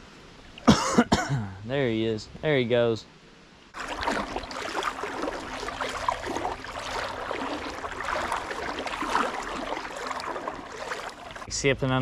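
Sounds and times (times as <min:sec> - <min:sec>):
creek water babbling: 0:03.7 - 0:11.6.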